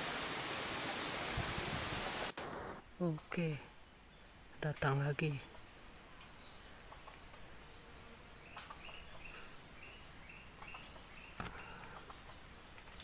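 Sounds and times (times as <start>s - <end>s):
insects droning: 2.4s - 13.0s
faint clicks: 10.6s - 13.0s.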